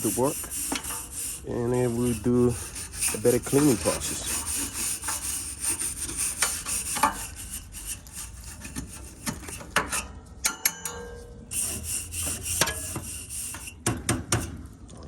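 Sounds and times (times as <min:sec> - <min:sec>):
tool scraping condenser fins: 0:00.0 - 0:14.6.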